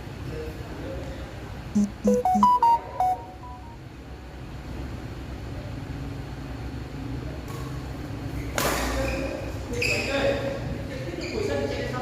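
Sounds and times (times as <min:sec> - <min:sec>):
electronic beep jingle: 0:01.8 - 0:03.8.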